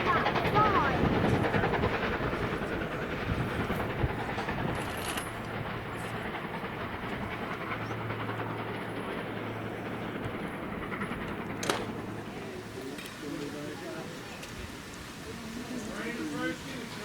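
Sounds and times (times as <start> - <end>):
train rolling along track: 0.0 - 17.0.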